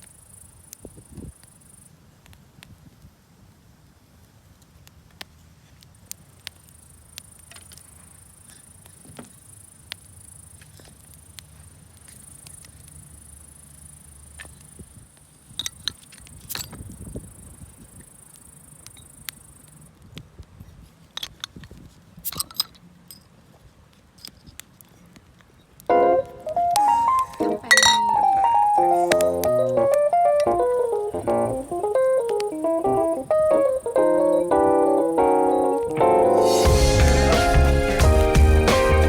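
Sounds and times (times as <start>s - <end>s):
campfire crackling and popping: 4.8s - 8.0s, 26.5s - 39.0s
insects trilling: 26.8s - 36.7s.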